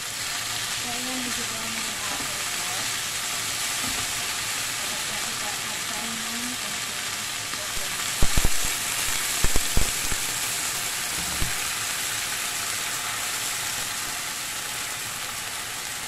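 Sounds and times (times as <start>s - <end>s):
pork sizzling in a wok: 0.0s - 16.0s
pan bubbling: 7.8s - 11.9s.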